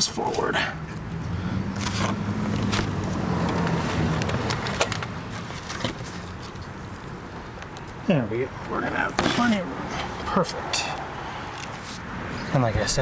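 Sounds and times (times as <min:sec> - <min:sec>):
low engine hum: 0:00.6 - 0:07.6.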